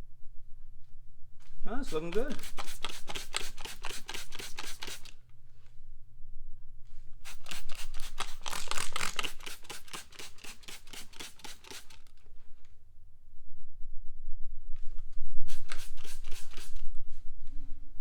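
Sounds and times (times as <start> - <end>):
scratchy brushing strokes: 1.7 - 5.1, 7.0 - 12.1, 15.5 - 16.9.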